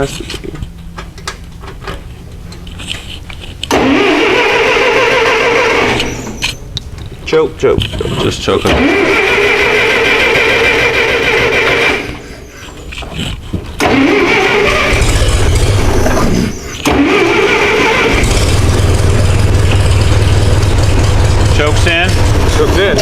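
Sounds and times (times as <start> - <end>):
tractor engine running: 0.0 - 23.0
electric starter cranking engine: 3.6 - 6.6, 8.7 - 12.6, 13.2 - 23.0.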